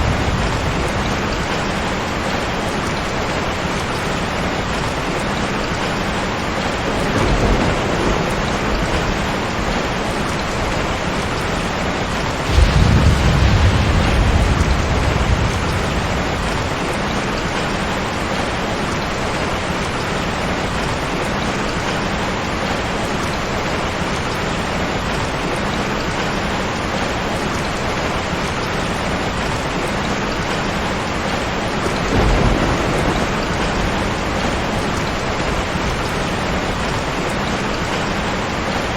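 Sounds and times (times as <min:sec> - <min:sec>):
thunder crack: 0:00.0 - 0:03.1, 0:04.8 - 0:18.7, 0:31.7 - 0:38.0
low thunder rumble: 0:00.0 - 0:21.0, 0:30.8 - 0:38.8
steady rain: 0:00.0 - 0:38.9.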